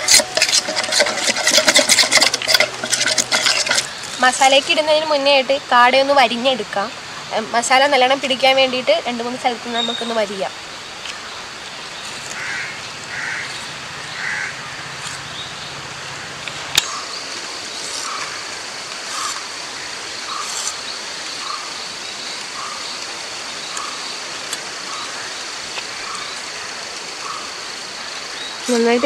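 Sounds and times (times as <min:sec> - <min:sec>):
steady high whine: 0:00.0 - 0:21.5
steady hiss: 0:00.0 - 0:29.0.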